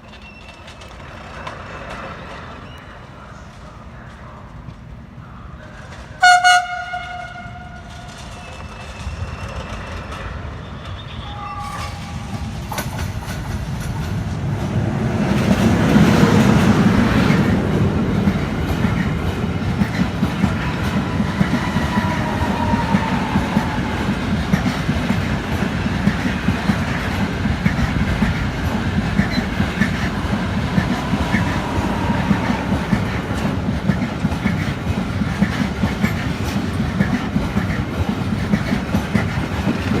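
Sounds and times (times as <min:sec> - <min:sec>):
faint wheel squeal: 0:00.0 - 0:03.5, 0:08.1 - 0:12.4
train passing on rails: 0:00.0 - 0:40.0
train horn blast: 0:06.2 - 0:08.2, 0:21.0 - 0:24.2.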